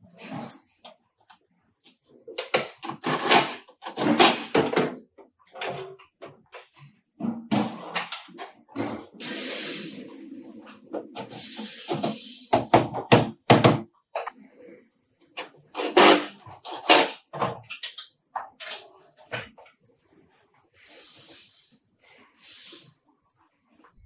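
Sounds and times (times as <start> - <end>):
compressed air hissing: 9.2 - 10.2, 11.3 - 12.7, 20.8 - 21.8, 22.4 - 23.0.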